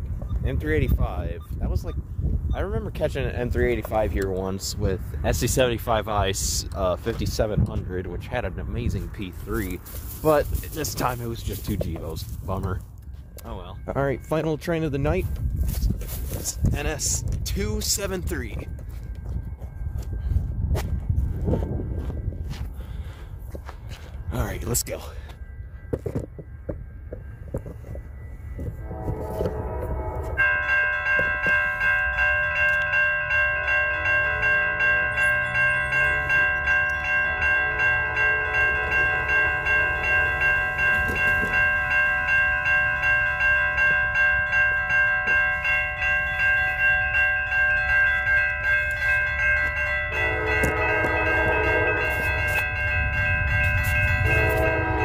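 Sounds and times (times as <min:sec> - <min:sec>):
railroad crossing bell ringing: 0:00.0 - 0:55.0
freight train approaching: 0:02.6 - 0:15.6, 0:16.3 - 0:55.0
locomotive air horn: 0:28.8 - 0:30.6, 0:37.3 - 0:41.9, 0:50.1 - 0:52.8, 0:53.6 - 0:55.0.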